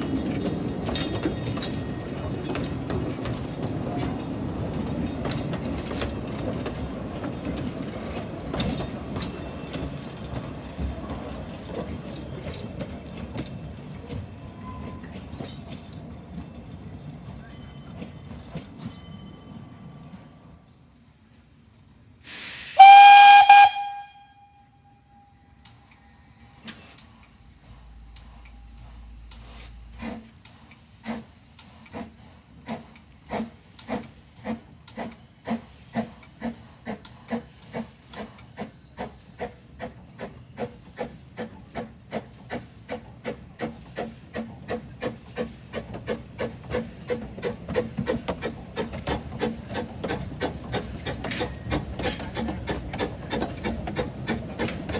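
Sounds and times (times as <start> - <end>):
steam locomotive exhaust chuffs: 22.2 - 24.2, 25.5 - 54.9
steam locomotive whistle: 22.7 - 25.6.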